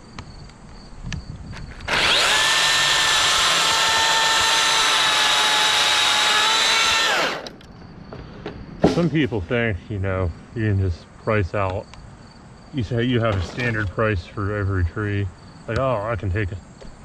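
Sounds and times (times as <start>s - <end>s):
chainsaw running at full speed: 1.9s - 7.5s.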